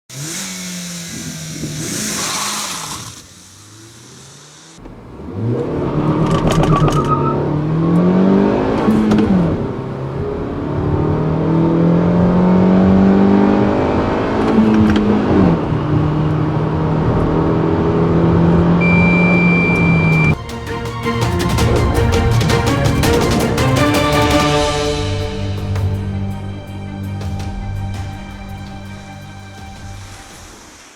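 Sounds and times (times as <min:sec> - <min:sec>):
car engine accelerating: 0:00.1 - 0:30.9
steady high beep: 0:18.8 - 0:20.4.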